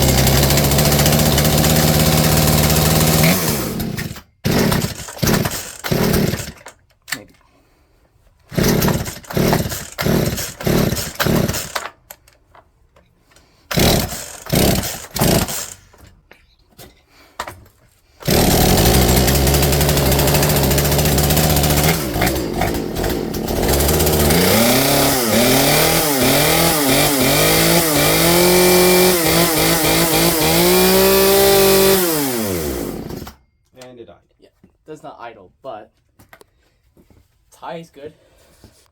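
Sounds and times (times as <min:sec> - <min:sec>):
chainsaw engine revving: 0:00.0 - 0:06.7, 0:08.5 - 0:11.9, 0:13.7 - 0:15.8, 0:18.2 - 0:33.4
recoil starter rasping tugs: 0:00.0 - 0:06.7, 0:08.5 - 0:12.0, 0:13.7 - 0:16.0, 0:18.2 - 0:33.4.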